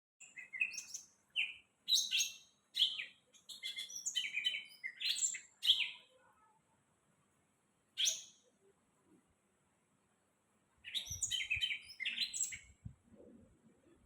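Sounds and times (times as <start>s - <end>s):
bird singing chirps and whistles: 0.2s - 6.0s, 8.0s - 8.4s, 10.8s - 12.8s.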